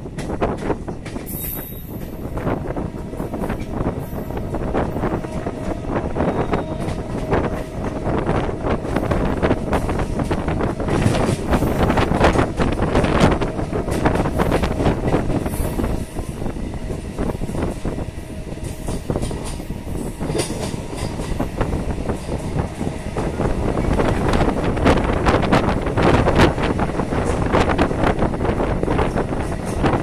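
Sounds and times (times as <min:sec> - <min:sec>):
train rumble: 0:00.0 - 0:30.0
high wheel squeals: 0:01.3 - 0:02.3.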